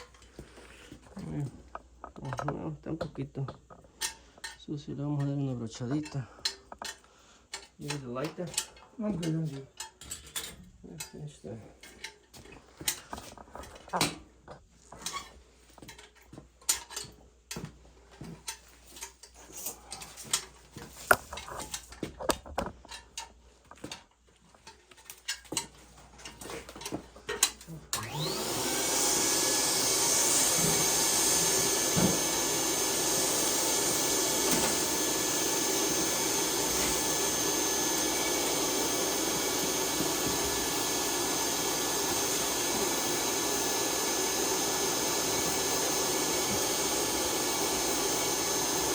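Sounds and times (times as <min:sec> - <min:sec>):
tools clicking and knocking: 0:01.6 - 0:11.2, 0:11.8 - 0:17.6, 0:18.4 - 0:28.2
vacuum cleaner motor whining: 0:27.9 - 0:48.9.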